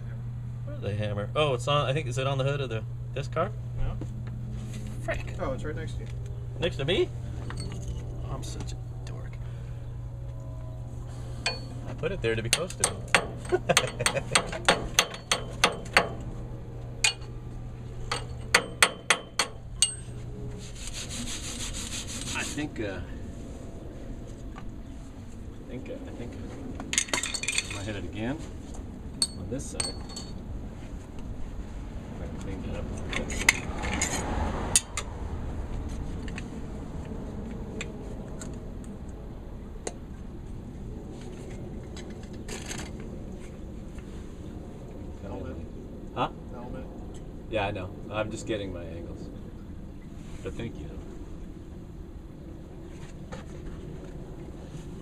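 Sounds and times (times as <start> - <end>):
steady low hum: 0.0 - 55.0
hammer tapping metal pipe: 11.4 - 11.8, 12.5 - 16.2, 18.1 - 20.2.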